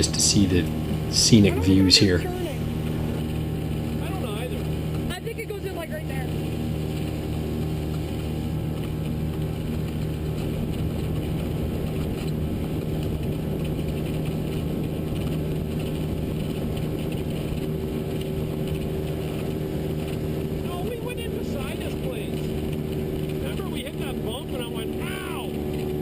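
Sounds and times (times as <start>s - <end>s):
outboard motor running: 0.0s - 26.0s.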